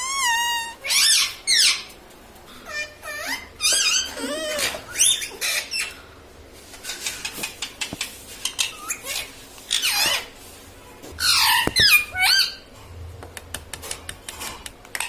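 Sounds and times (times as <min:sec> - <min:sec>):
parakeet calling: 0:00.0 - 0:01.9, 0:02.6 - 0:06.0, 0:07.0 - 0:10.4, 0:11.2 - 0:12.7.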